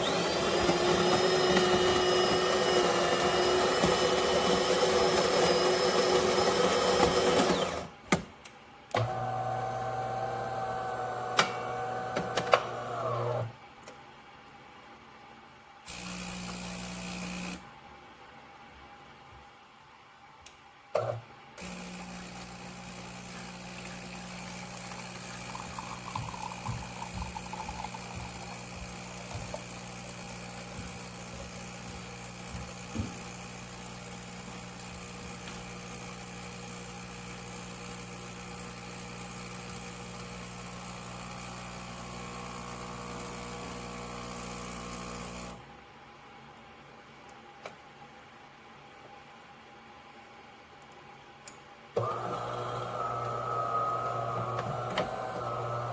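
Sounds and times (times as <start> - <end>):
espresso machine humming: 0.0 - 7.8, 9.0 - 13.4, 21.6 - 45.6, 52.0 - 55.9
bubbling: 24.6 - 29.9.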